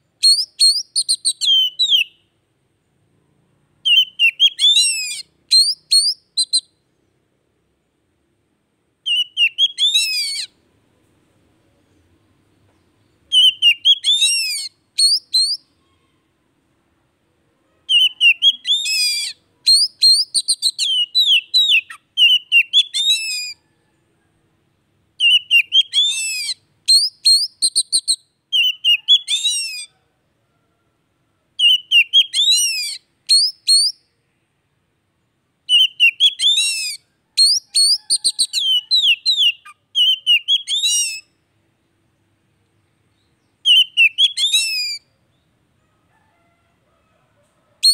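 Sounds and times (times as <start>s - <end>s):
bird singing whistled notes: 0.2s - 2.3s, 3.8s - 6.9s, 9.0s - 10.6s, 13.0s - 15.8s, 17.9s - 23.6s, 25.2s - 29.9s, 31.6s - 34.2s, 35.7s - 41.4s, 43.1s - 45.6s.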